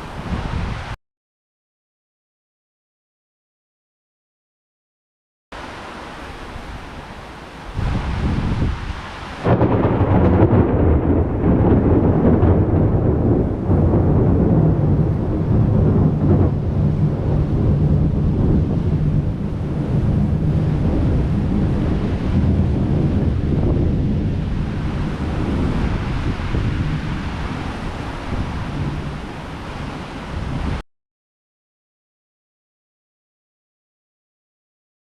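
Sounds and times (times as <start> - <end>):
low thunder rumble: 7.8 - 30.8
thunder crack: 9.4 - 29.1.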